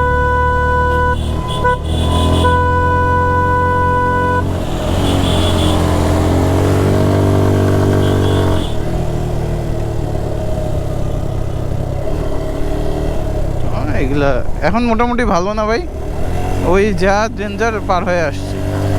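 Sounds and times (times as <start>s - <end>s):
motorcycle horn blast: 0.0s - 6.6s, 7.6s - 9.0s
motorcycle engine running: 0.0s - 18.9s.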